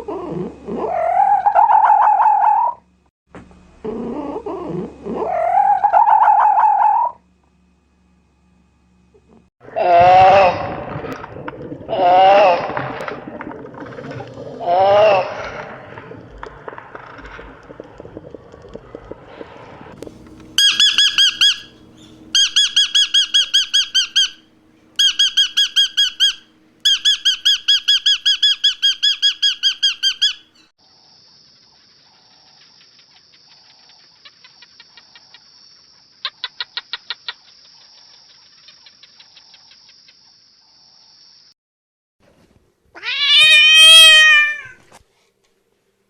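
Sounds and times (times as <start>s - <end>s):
high whine with ticking chirps: 20.0s - 30.5s
bird squeaky calls: 20.5s - 30.7s.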